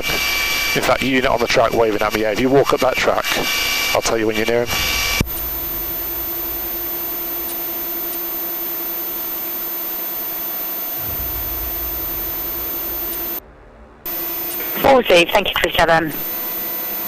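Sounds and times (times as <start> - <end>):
radio hiss: 0.0 - 13.4, 14.1 - 17.0
constant low hum: 4.4 - 17.0
low rumble: 4.8 - 8.0, 11.0 - 16.3.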